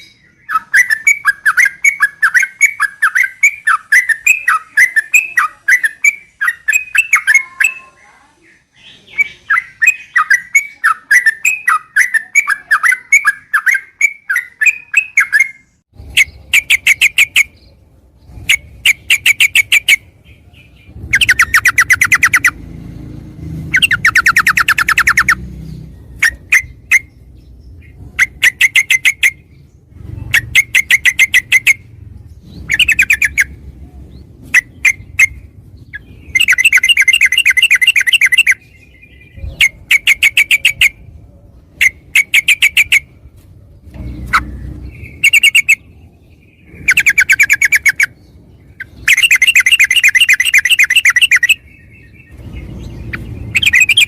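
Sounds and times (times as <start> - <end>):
bird warbling: 0.0 - 8.1, 8.8 - 17.7, 18.4 - 22.8, 23.6 - 43.2, 44.0 - 54.0
bird rattling trills: 21.0 - 22.6, 23.6 - 27.3, 34.5 - 38.6, 41.8 - 43.1, 44.0 - 45.9, 46.6 - 51.6, 52.3 - 54.0.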